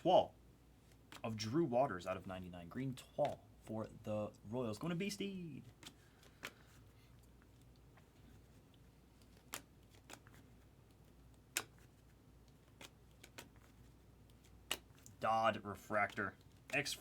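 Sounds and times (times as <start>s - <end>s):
trading cards clicking and flicking: 0.9s - 1.4s, 5.6s - 6.8s, 9.1s - 15.2s.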